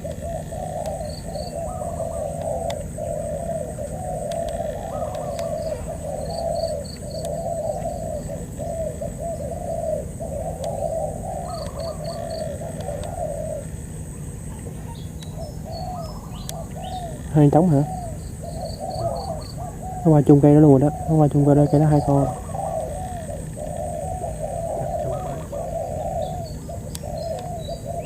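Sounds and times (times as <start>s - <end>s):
doves cooing: 0.0s - 28.0s
small birds chirping: 0.0s - 28.0s.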